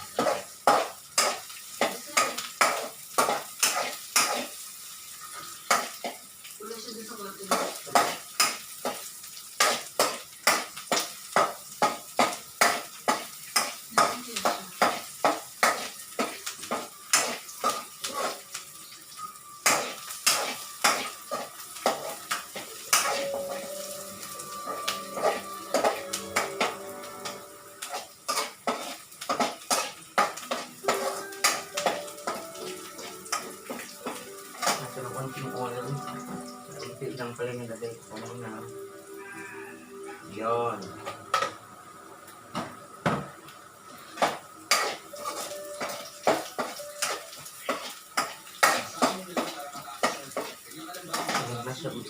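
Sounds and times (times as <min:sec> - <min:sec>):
spatula scraping a frying pan: 0:00.0 - 0:04.6, 0:07.5 - 0:18.5, 0:19.6 - 0:23.7, 0:24.5 - 0:32.4, 0:44.1 - 0:49.2
meat sizzling: 0:00.0 - 0:52.0.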